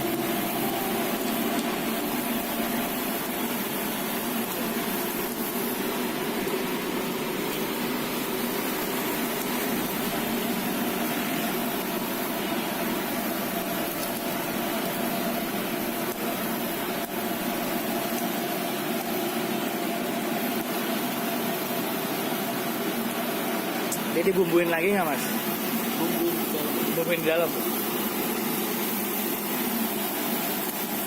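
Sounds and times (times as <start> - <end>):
held tones: 0.0 - 3.0
continuous hiss: 0.0 - 31.0
machine hum: 0.0 - 31.0.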